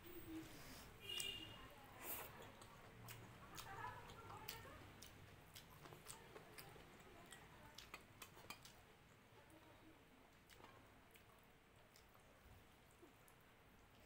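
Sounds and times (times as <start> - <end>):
soft chewing mouth clicks: 2.0 - 9.3, 10.3 - 14.0.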